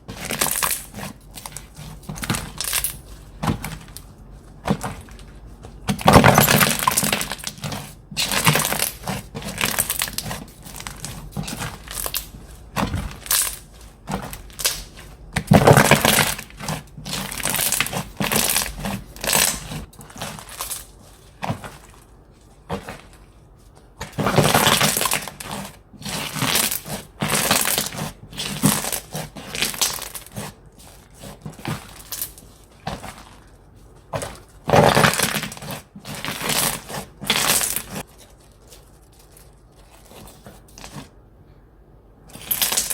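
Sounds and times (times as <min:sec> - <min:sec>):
slime crackling and crunching: 0:00.0 - 0:41.1, 0:42.3 - 0:42.9.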